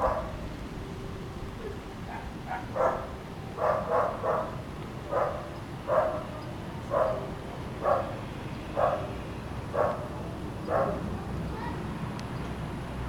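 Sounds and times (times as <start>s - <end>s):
dog barking: 0.0s - 0.4s, 2.1s - 8.2s, 8.8s - 9.1s, 9.7s - 11.1s.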